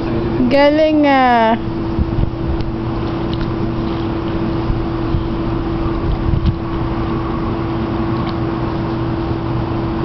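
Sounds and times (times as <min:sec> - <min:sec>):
steady mechanical hum: 0:00.0 - 0:10.0
low rumble: 0:01.6 - 0:08.1.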